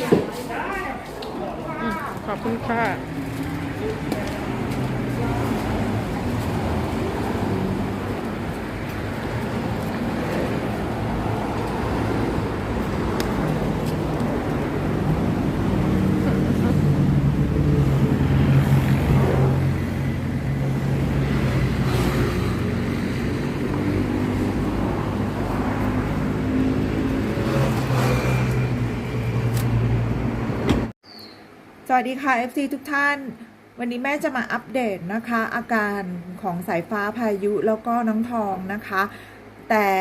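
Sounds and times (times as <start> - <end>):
car engine and road noise: 1.6 - 31.8.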